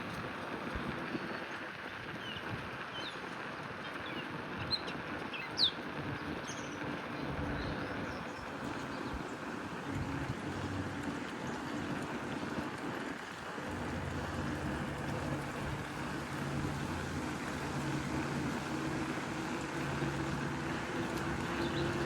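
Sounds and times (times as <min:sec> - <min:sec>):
outdoor bicycle riding noise: 0:00.0 - 0:22.0
low steady hum: 0:05.9 - 0:22.0.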